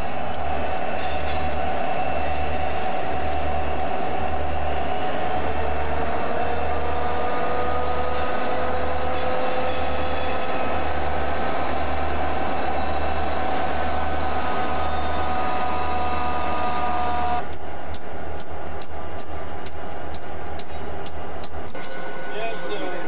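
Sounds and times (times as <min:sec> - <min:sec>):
high-pitched wheel squeal: 0:00.0 - 0:03.8, 0:06.3 - 0:17.4
low train rumble: 0:00.0 - 0:23.0.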